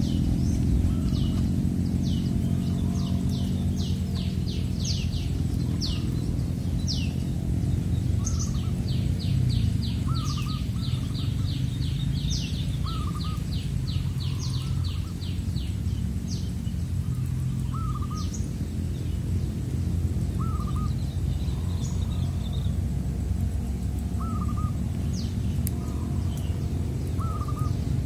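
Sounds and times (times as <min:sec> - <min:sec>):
low background rumble: 0:00.0 - 0:28.0
bird warbled notes: 0:25.8 - 0:27.9.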